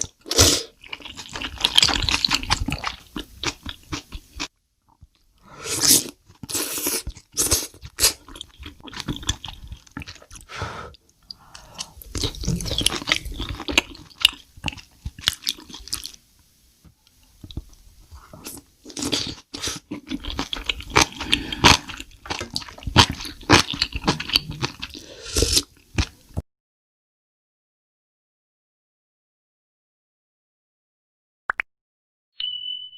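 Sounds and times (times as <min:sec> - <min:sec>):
crunchy eating and chewing: 0:00.0 - 0:10.5, 0:11.5 - 0:16.2, 0:17.5 - 0:26.3.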